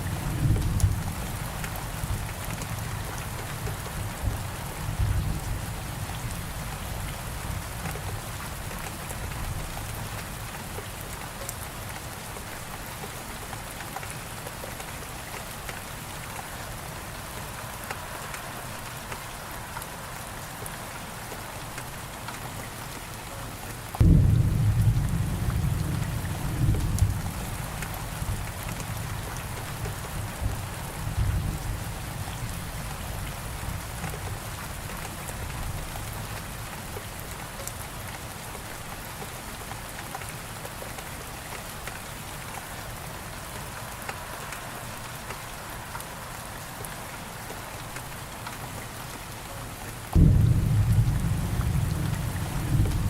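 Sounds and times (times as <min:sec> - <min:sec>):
heavy rain: 0:00.0 - 0:53.0
loud thunderclap rumbling: 0:24.0 - 0:28.4, 0:50.2 - 0:53.0
low rolling thunder: 0:24.0 - 0:33.9, 0:50.2 - 0:53.0.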